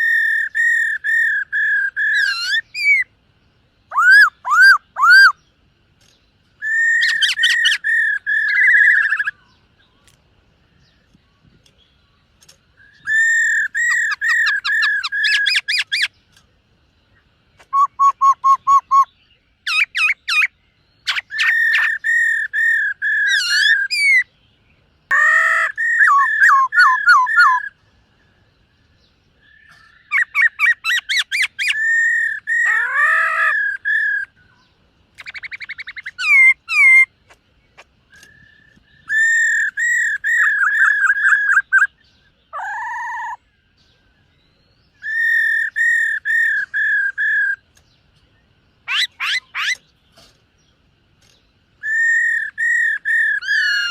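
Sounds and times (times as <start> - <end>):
bird singing whistled phrases: 0.0 - 3.1, 3.9 - 5.4, 6.6 - 9.6, 12.8 - 16.1, 17.6 - 24.3, 25.1 - 27.8, 29.4 - 34.4, 35.2 - 37.1, 38.1 - 43.5, 44.3 - 47.6, 51.8 - 53.9.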